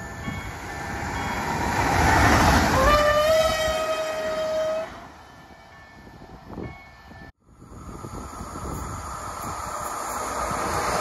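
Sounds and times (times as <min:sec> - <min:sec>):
electric train passing: 0:00.0 - 0:11.0
train horn long steady note: 0:02.8 - 0:05.0.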